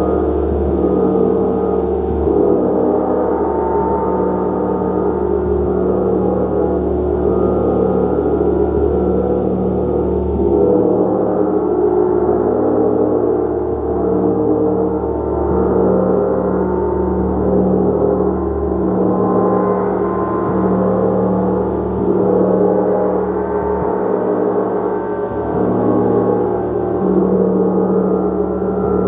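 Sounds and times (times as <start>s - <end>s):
gong ringing: 14.8s - 29.0s.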